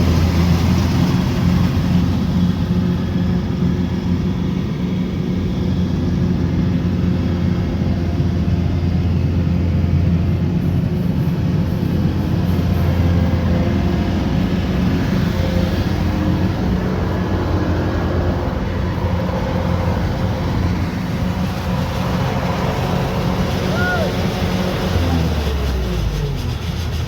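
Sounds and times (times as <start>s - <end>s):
diesel engine droning: 0.0s - 27.0s.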